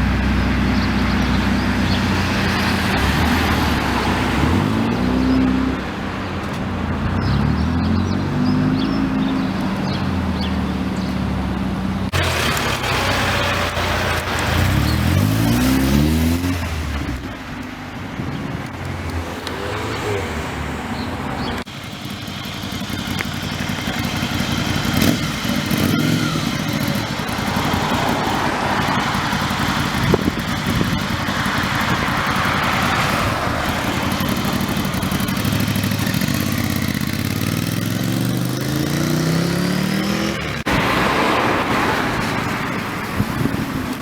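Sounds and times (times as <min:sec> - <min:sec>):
car engine accelerating: 0:00.0 - 0:06.1, 0:06.9 - 0:17.4, 0:19.1 - 0:44.0
street traffic: 0:00.0 - 0:44.0.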